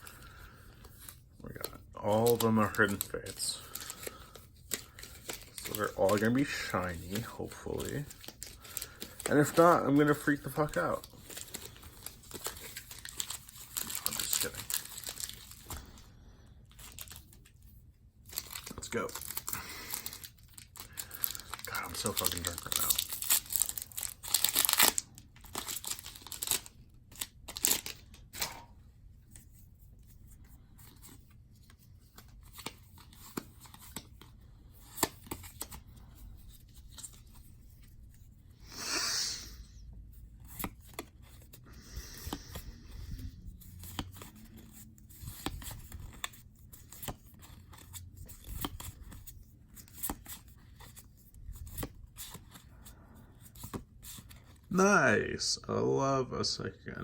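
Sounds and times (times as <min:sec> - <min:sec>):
foil wrapper tearing and crinkling: 0:01.6 - 0:15.9, 0:18.3 - 0:28.6.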